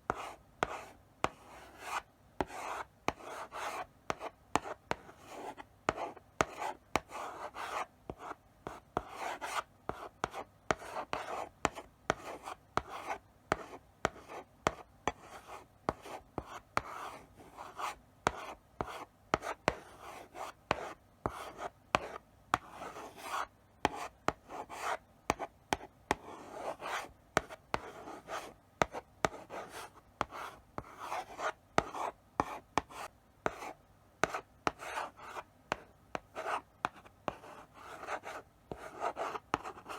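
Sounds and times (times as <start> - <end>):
chalk tapping on board: 0.1 - 15.2, 20.7 - 39.9
chalk scratching on blackboard: 16.8 - 39.9.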